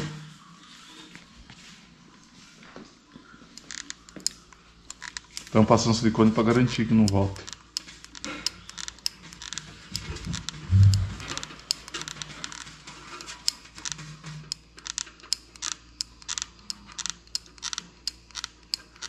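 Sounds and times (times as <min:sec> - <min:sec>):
light clicks and taps of tools: 0:03.5 - 0:05.6.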